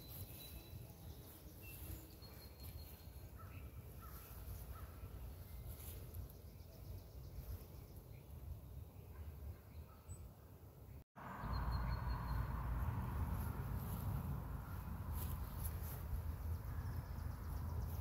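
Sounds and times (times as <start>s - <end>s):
bird chirps and calls: 0.0s - 8.2s.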